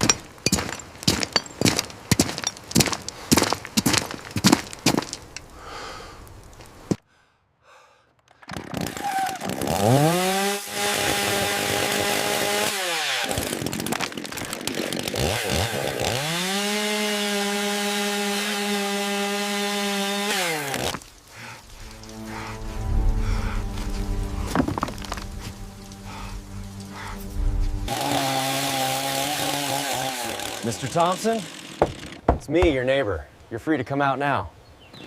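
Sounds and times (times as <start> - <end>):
chainsaw cutting wood: 8.5 - 21.4, 27.9 - 32.4
sharp knocks: 31.8 - 32.8.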